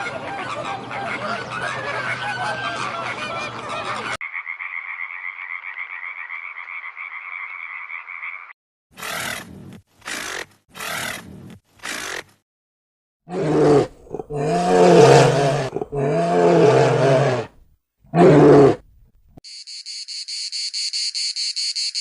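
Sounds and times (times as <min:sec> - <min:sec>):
frog chorus trilling: 0:04.2 - 0:08.6.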